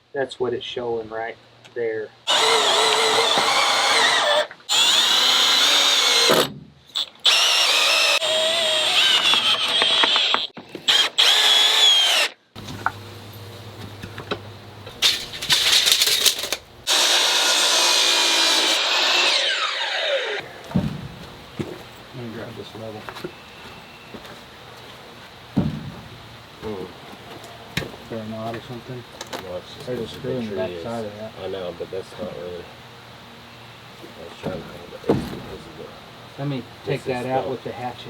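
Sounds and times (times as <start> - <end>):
power drill driving screws: 2.3 - 12.4, 15.0 - 20.4.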